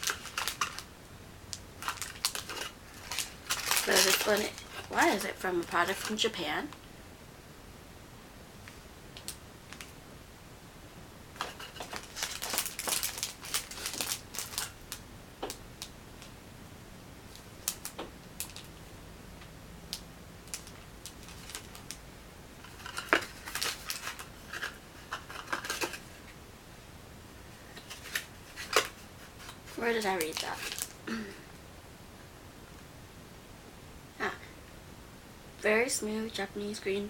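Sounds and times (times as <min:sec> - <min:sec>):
cardboard packaging clicks and crinkles: 0:00.0 - 0:00.9, 0:01.5 - 0:06.8, 0:11.4 - 0:16.3, 0:17.3 - 0:18.7, 0:19.9 - 0:22.0, 0:22.6 - 0:26.4, 0:27.7 - 0:31.0.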